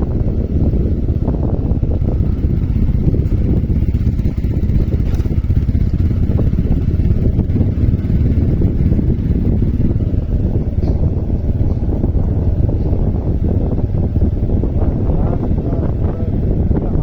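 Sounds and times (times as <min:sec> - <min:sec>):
motorcycle running: 0:00.0 - 0:17.0
wind rushing over microphone: 0:00.0 - 0:17.0.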